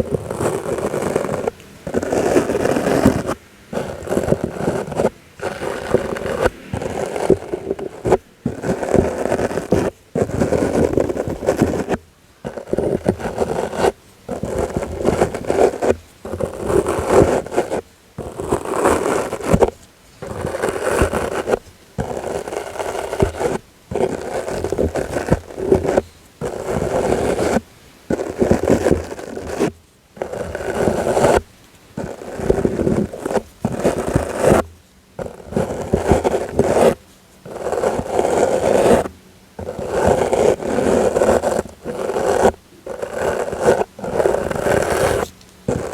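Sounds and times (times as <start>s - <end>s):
brush strokes rustling: 0.0s - 45.9s.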